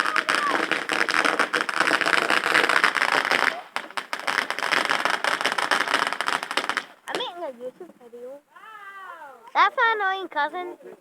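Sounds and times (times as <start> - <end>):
fireworks crackling: 0.0 - 8.4.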